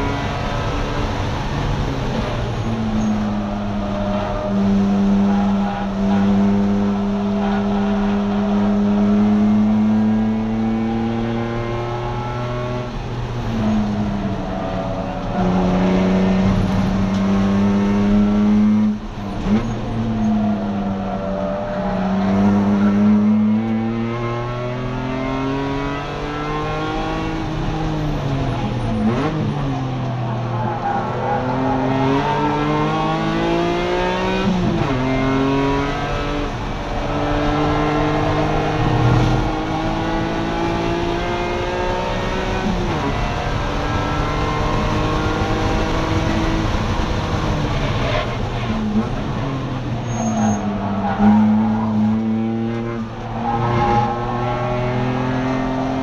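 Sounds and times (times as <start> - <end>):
car engine revving hard: 4.3 - 14.2, 15.2 - 19.6, 31.2 - 56.0.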